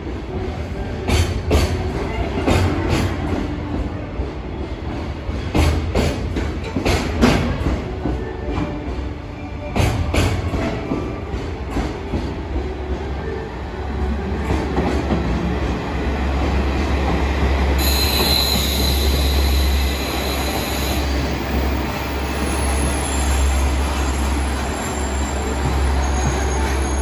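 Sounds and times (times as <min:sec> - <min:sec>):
freight train rolling: 0:00.0 - 0:27.0
railcar engine rumbling: 0:00.0 - 0:27.0
high steady squeal: 0:17.8 - 0:27.0.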